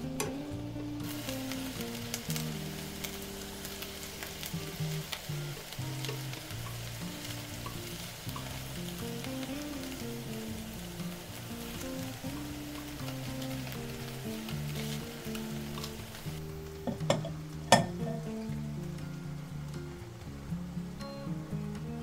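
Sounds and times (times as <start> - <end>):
leek and garlic sizzling: 0.0 - 22.0
soft background music: 0.0 - 22.0
chopsticks clicking on pan: 0.1 - 0.4, 4.1 - 10.4, 11.8 - 18.3.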